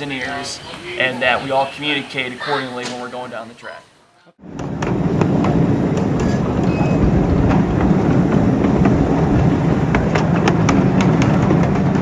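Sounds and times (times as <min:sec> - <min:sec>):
steam train rumbling: 0:04.4 - 0:12.0
sharp clicks and clanks: 0:04.6 - 0:12.0.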